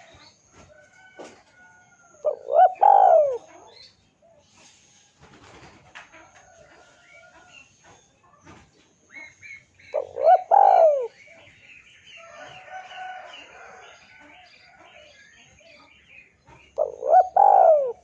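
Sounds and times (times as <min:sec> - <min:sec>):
small birds chirping faintly: 0:00.0 - 0:18.0
dove cooing: 0:02.2 - 0:03.8, 0:09.2 - 0:11.6, 0:16.7 - 0:18.0.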